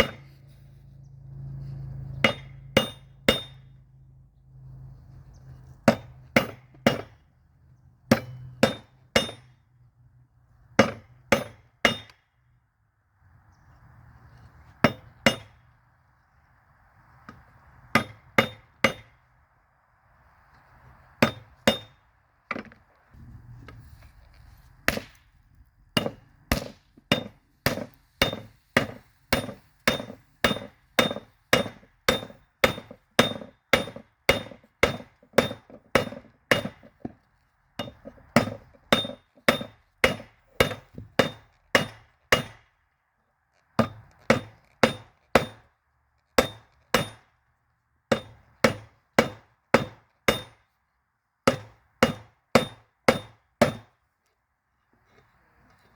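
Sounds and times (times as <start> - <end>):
hammer striking metal: 2.2 - 3.7, 8.1 - 9.6, 10.8 - 12.2, 26.0 - 36.8, 37.8 - 42.7, 48.1 - 50.6.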